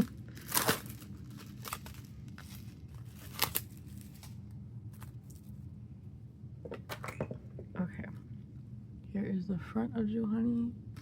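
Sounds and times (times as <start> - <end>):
paper and plastic rustling: 0.0 - 5.6
low steady hum: 0.0 - 11.0.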